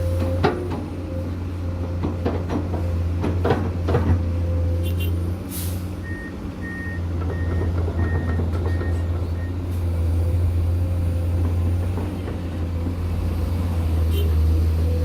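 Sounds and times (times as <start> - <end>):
diesel construction vehicle running: 0.0 - 15.0
reversing alarm beeping: 6.0 - 9.6.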